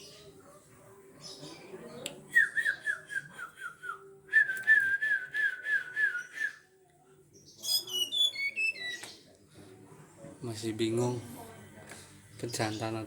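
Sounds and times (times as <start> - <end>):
songbird whistling calls: 7.6 - 9.2.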